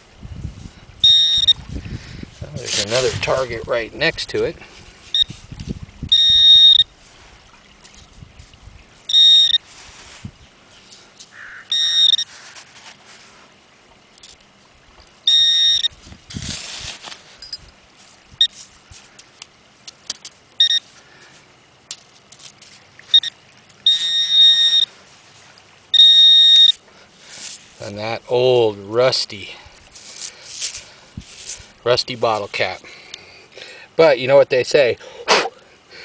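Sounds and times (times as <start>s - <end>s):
metal detector beeping: 1.0s - 1.6s, 5.1s - 5.4s, 6.1s - 6.9s, 9.1s - 9.7s, 11.7s - 12.3s, 15.2s - 16.0s, 20.6s - 20.9s, 23.1s - 24.9s, 25.9s - 26.8s
sand scraping: 2.4s - 3.6s, 9.6s - 10.3s, 16.3s - 17.3s, 30.0s - 32.6s.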